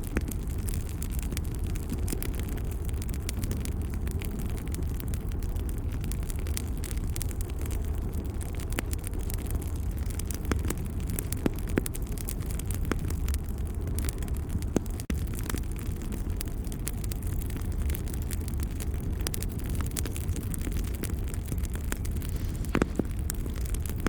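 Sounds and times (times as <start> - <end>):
wood fire burning: 0.0 - 24.0.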